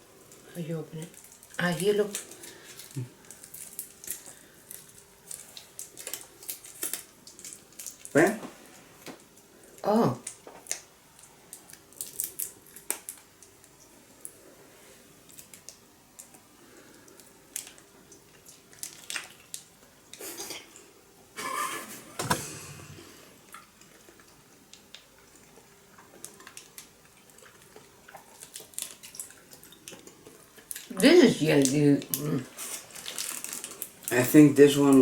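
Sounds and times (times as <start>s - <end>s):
plastic packaging crinkling: 1.0s - 8.2s, 10.2s - 13.6s, 18.5s - 19.7s, 26.2s - 30.0s, 30.6s - 35.0s
loud knock: 22.2s - 23.0s.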